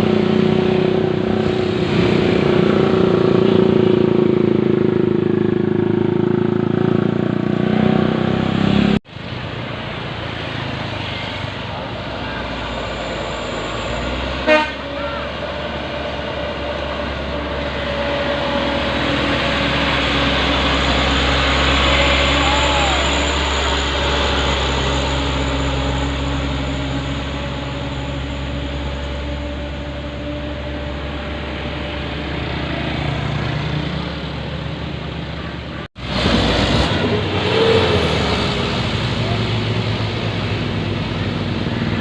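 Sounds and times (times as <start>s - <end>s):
road traffic: 0.0s - 42.0s
diesel truck engine under load: 11.6s - 42.0s.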